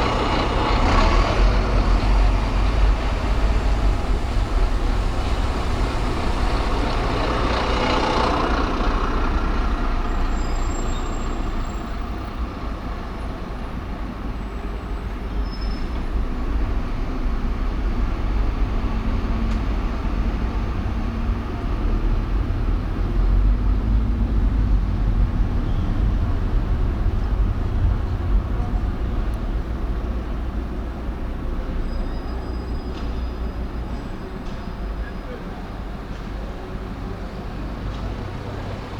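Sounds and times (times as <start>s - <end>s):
heavy vehicle passing hiss: 0.0s - 12.2s
road noise from moving car: 0.0s - 38.9s.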